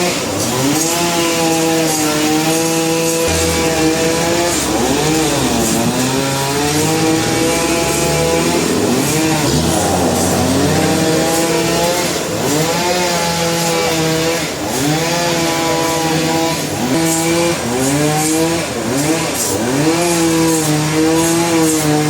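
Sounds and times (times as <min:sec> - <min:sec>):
sawmill saw cutting: 0:00.0 - 0:22.0
low engine hum: 0:02.4 - 0:12.8.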